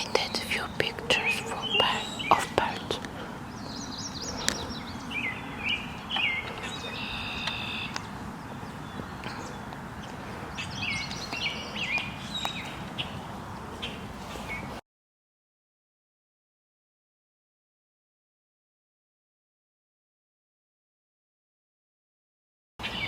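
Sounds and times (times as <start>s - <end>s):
low outdoor background noise: 0.0s - 14.8s, 22.8s - 23.0s
songbird chirping: 0.0s - 14.8s.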